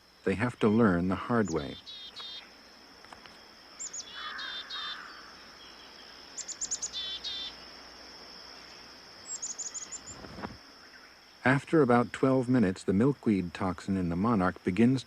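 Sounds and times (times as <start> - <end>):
high bird chirping: 0.0 - 2.5, 3.8 - 7.6, 8.6 - 11.2
insect drone: 0.0 - 15.0.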